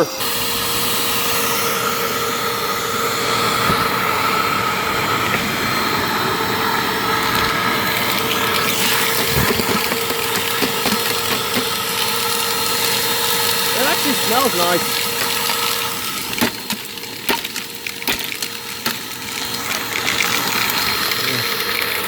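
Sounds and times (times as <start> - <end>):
vacuum suction rushing: 0.0 - 16.4
vacuum cleaner motor whine: 0.0 - 22.0.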